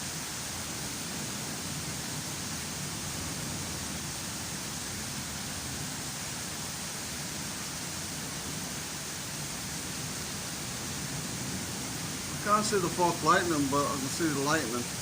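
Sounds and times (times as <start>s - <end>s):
heavy rain hiss: 0.0s - 15.0s.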